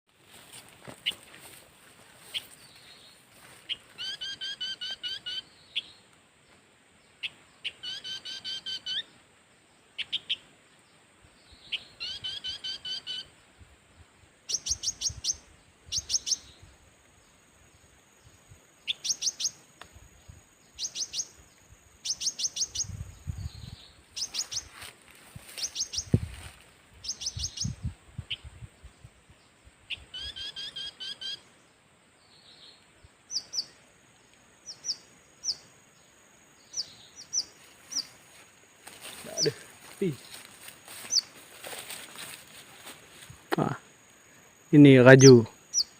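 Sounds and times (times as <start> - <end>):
bird-like chirping calls: 3.7 - 6.0, 7.2 - 9.1, 11.6 - 13.3, 14.5 - 16.6, 18.8 - 19.6, 20.8 - 21.4, 22.0 - 24.8, 27.0 - 28.5, 29.9 - 31.4, 33.3 - 33.8, 36.6 - 38.2, 41.0 - 41.4, 45.1 - 45.9.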